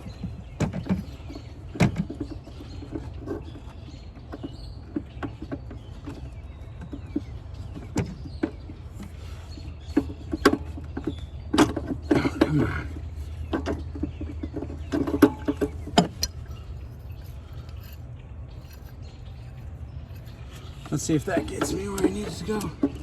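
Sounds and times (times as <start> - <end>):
steady low hum: 5.9 - 23.0.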